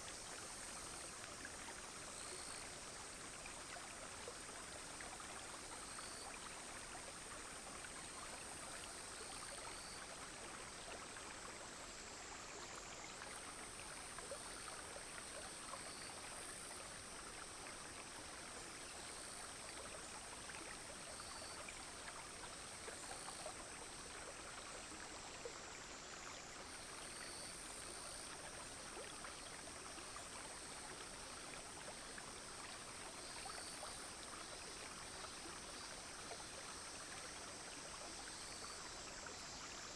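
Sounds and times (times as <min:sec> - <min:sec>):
high continuous insect buzz: 0:00.0 - 0:39.9
stream flowing and trickling: 0:00.0 - 0:39.9.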